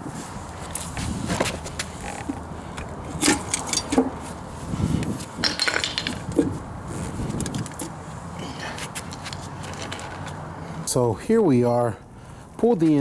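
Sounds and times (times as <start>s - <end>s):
metal tools clinking: 3.1s - 4.3s, 5.4s - 6.5s.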